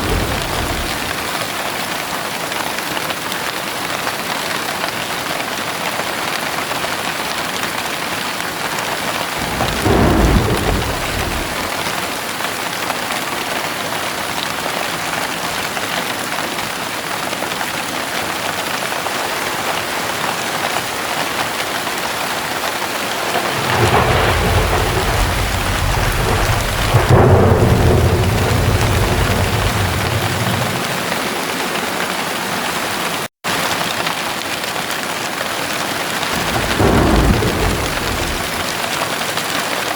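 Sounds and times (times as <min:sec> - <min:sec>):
deep rumble of thunder: 0:00.0 - 0:01.4, 0:09.4 - 0:12.4, 0:22.7 - 0:32.1, 0:36.3 - 0:39.2
thunder clap: 0:00.0 - 0:01.4, 0:09.3 - 0:12.4, 0:22.4 - 0:32.4, 0:36.3 - 0:39.4
heavy rain: 0:00.0 - 0:39.9.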